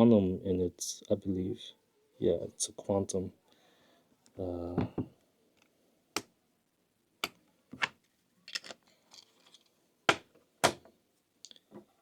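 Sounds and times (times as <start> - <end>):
metal parts clicking: 8.5 - 9.7.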